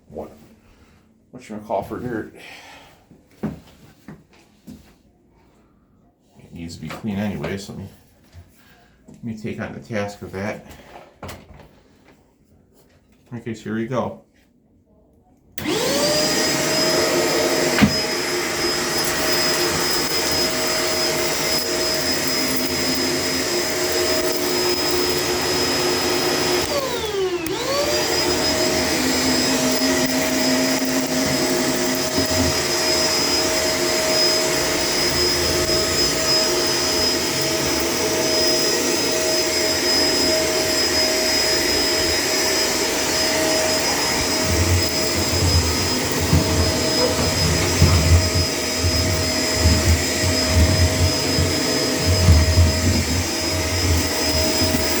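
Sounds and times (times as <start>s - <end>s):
vacuum cleaner whining: 15.6s - 55.0s.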